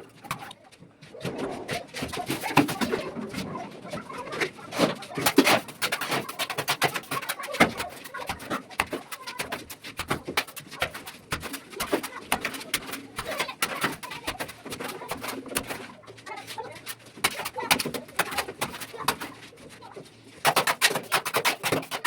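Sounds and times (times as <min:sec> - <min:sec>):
sharp clicks and scrapes: 0:00.0 - 0:22.0.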